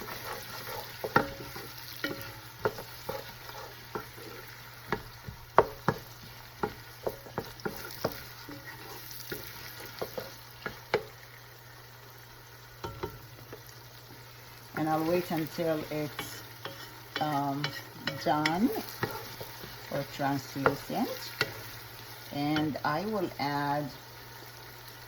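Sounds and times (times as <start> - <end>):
utensil scraping and knocking pan: 0.0 - 11.1, 16.0 - 21.6
onion and garlic sizzling in oil: 0.0 - 25.0.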